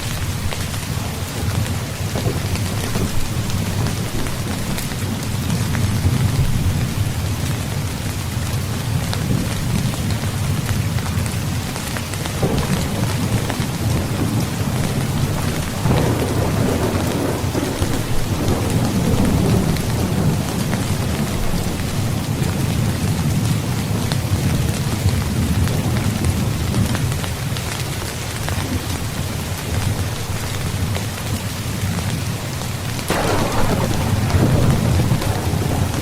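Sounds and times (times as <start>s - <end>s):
heavy rain: 0.0s - 36.0s
rolling thunder: 12.4s - 26.9s, 33.1s - 36.0s.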